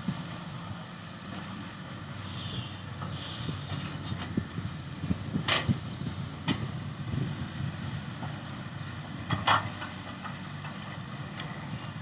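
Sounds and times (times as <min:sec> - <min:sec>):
excavator clanking: 0:08.3 - 0:11.8.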